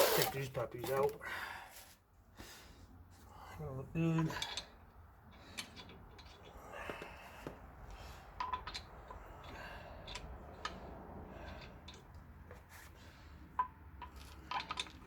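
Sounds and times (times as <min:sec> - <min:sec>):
metallic clicks of wheel hardware: 0:04.1 - 0:15.0.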